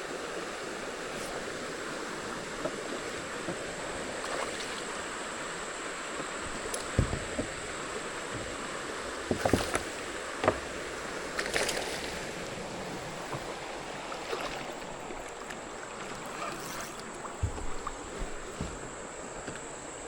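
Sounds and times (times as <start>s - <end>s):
creek water rushing: 0.0s - 20.0s
knocks against a kayak: 6.5s - 8.6s, 9.2s - 10.8s, 17.3s - 19.7s.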